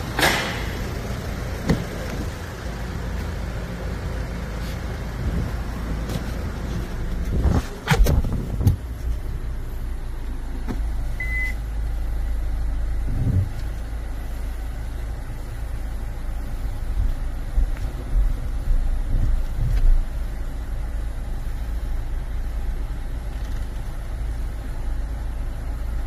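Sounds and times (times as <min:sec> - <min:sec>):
diesel engine idling: 0:00.0 - 0:26.0
short electronic beep: 0:11.2 - 0:11.6.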